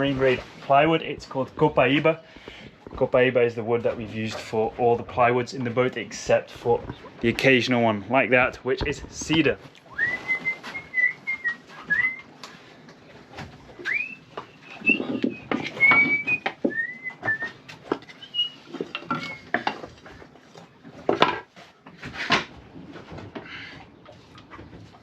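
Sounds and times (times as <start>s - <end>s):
knocks and clatter of handling: 8.4s - 12.1s, 12.9s - 25.0s
person whistling a tune: 9.9s - 12.3s, 13.8s - 17.6s.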